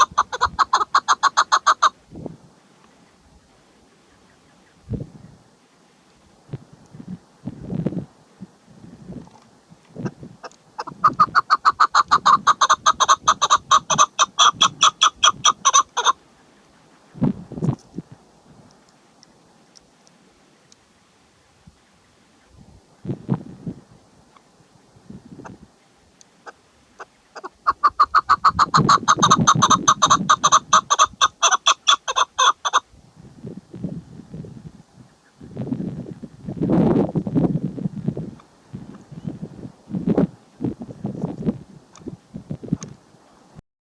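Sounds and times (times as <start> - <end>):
partridge calling: 0.0 - 2.0, 10.0 - 17.1, 26.4 - 32.8.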